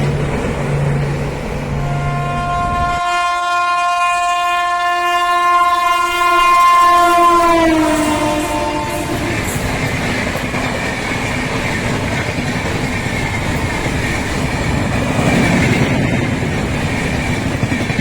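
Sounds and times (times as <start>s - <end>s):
train passing at high speed: 0.0s - 18.0s
train horn blast: 1.7s - 9.6s.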